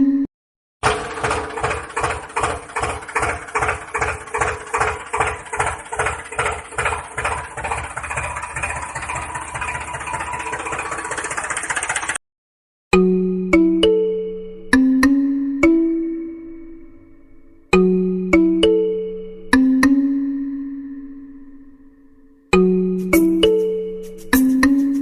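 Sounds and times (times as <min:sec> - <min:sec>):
tractor engine chugging: 0:00.8 - 0:12.2, 0:23.0 - 0:25.0.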